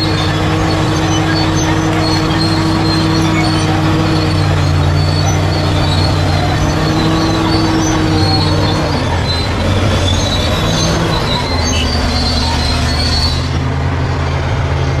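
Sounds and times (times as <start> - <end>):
diesel engine running: 0.0 - 15.0
steel tracks squealing: 0.0 - 15.0.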